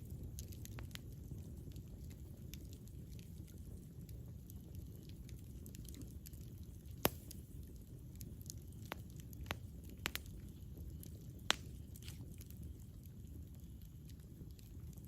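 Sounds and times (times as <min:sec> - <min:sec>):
burning wood crackling and popping: 0:00.0 - 0:15.0
rumble of flames: 0:00.0 - 0:15.0.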